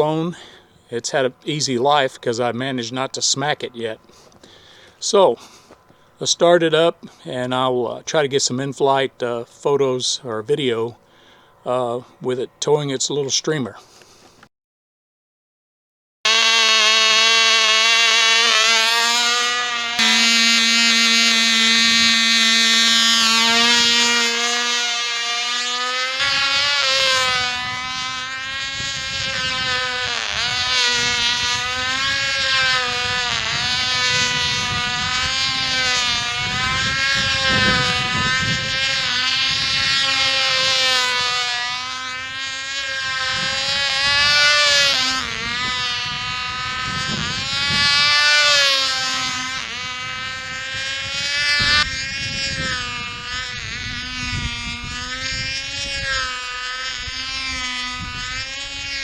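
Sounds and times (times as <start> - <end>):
model airplane engine buzzing: 16.3 - 59.0
wind rumble on microphone: 26.2 - 59.0.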